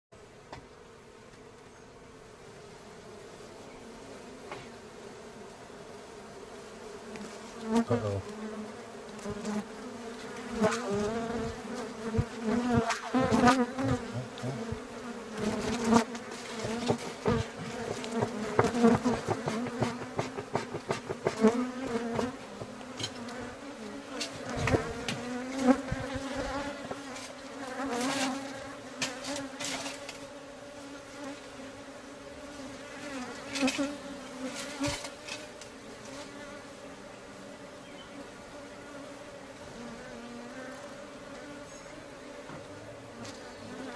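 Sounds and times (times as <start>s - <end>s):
honeybees buzzing: 0.2s - 43.9s
sharp taps and knocks: 16.6s - 23.6s.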